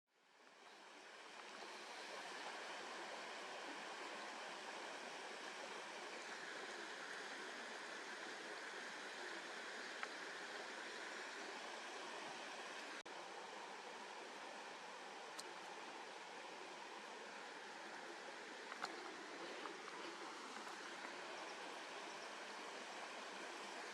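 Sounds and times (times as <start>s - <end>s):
faint click: 10.0s - 10.2s, 18.7s - 20.0s.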